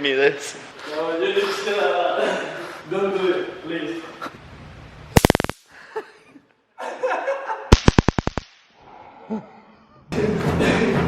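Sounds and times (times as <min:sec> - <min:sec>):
stun gun zapping: 0:05.2 - 0:05.7, 0:07.7 - 0:08.7.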